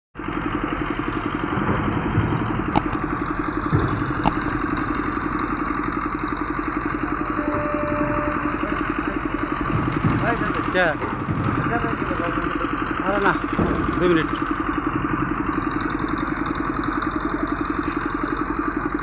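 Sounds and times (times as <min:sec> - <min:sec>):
engine idling: 0:00.2 - 0:19.0
sharp clicks: 0:02.7 - 0:04.8.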